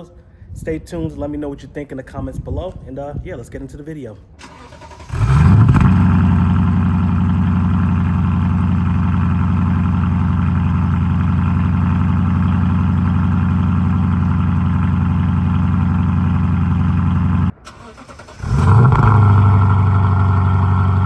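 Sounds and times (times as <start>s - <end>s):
car engine idling: 4.4s - 21.0s.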